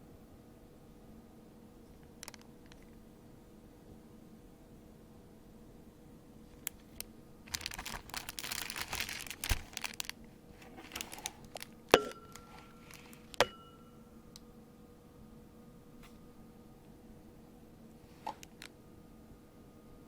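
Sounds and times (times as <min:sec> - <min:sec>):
packaging crinkling: 0:02.1 - 0:02.8, 0:06.6 - 0:13.4.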